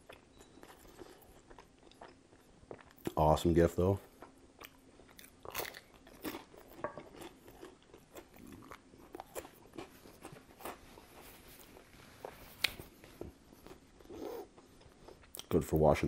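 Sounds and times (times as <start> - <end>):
crunchy chewing: 0.0 - 3.2, 4.0 - 15.6.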